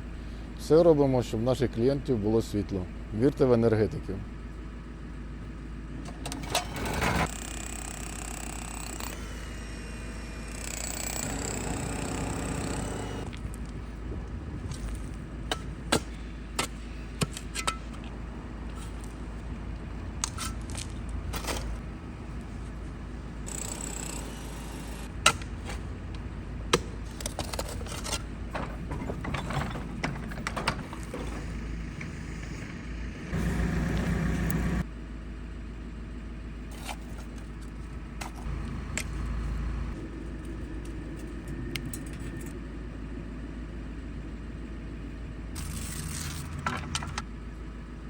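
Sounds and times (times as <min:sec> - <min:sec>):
low engine-like hum: 0:00.0 - 0:48.0
loud mechanical noise: 0:05.9 - 0:13.4, 0:23.4 - 0:35.1, 0:44.5 - 0:47.3.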